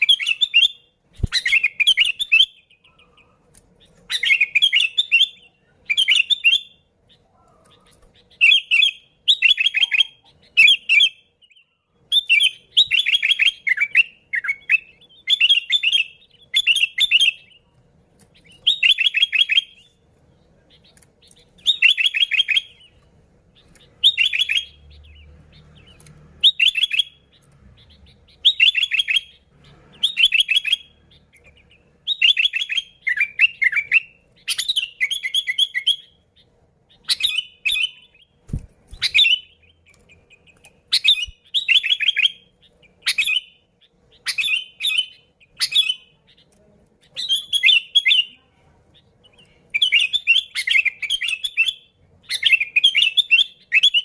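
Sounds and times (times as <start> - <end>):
bulbul chattering calls: 0.0 - 17.6.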